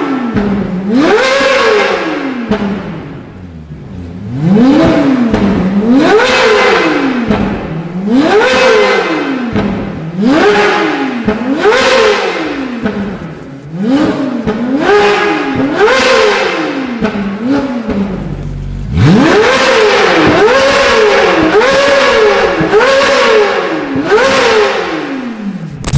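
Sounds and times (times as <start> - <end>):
sports car engine revving: 0.0 - 25.9.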